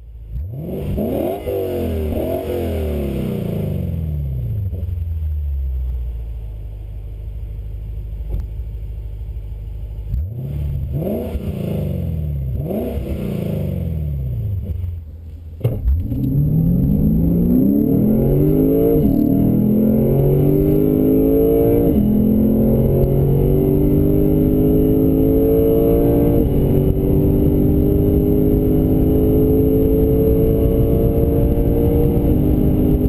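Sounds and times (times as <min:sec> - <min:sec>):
car engine revving: 0:00.0 - 0:05.8, 0:06.4 - 0:33.0
car accelerating at full throttle: 0:00.2 - 0:05.0, 0:10.1 - 0:33.0
car engine idling: 0:03.9 - 0:11.0, 0:13.8 - 0:17.6.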